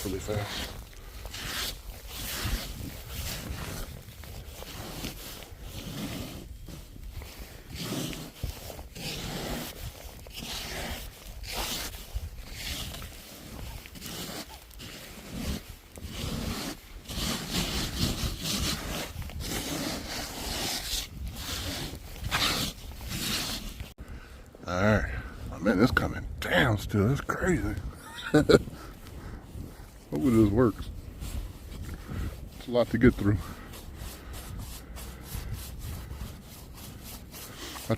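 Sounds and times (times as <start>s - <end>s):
snow brush scraping snow off car: 0.0s - 23.9s, 27.0s - 37.9s.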